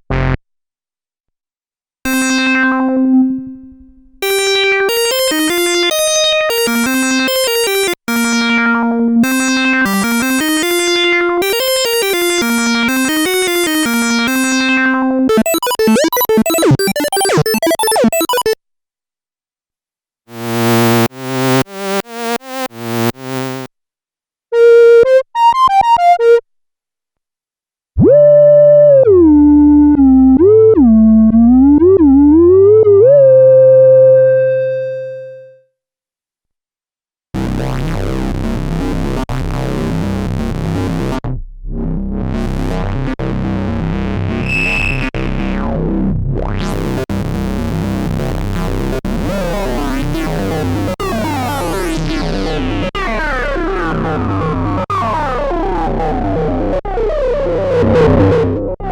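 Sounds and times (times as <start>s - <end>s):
plucked synthesizer notes: 0.0s - 0.4s, 2.1s - 18.6s, 43.6s - 58.9s
buzzing sequenced synth pattern: 4.2s - 8.4s, 9.2s - 14.6s, 15.3s - 18.6s, 20.3s - 23.7s
gliding synthesizer lead line: 15.3s - 18.6s, 57.0s - 58.9s
staccato synthesizer notes: 15.3s - 18.6s.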